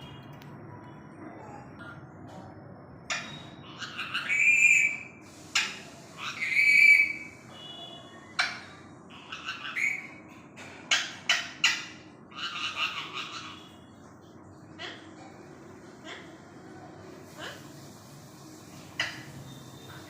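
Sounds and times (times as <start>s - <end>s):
parrot squawks: 3.1s - 7.7s, 8.4s - 10.2s, 10.9s - 13.8s
parrot whistling calls: 3.1s - 7.8s, 9.2s - 10.2s.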